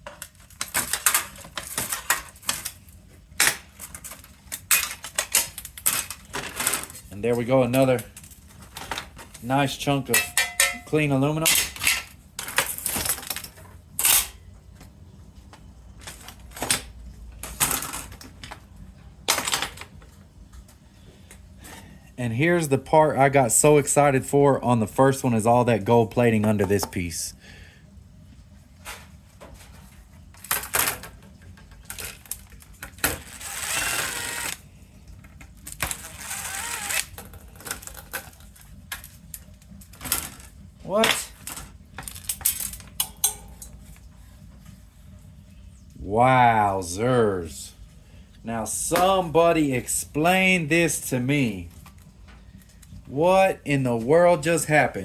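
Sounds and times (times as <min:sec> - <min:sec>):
metal parts clinking and clattering: 0:10.1 - 0:14.4
small power screwdriver whirring: 0:33.3 - 0:34.6, 0:36.0 - 0:37.1.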